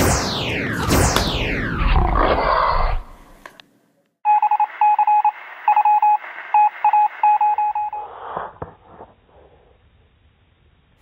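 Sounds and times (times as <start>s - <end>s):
loud noisy sound effect: 0.0s - 3.4s
telephone keypad beeps: 4.3s - 8.1s.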